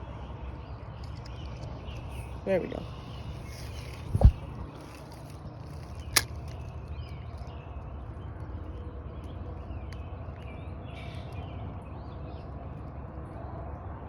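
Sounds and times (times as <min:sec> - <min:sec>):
birds chirping: 0:00.0 - 0:12.9
steady low rumble: 0:00.0 - 0:14.0
sharp click: 0:05.8 - 0:06.6.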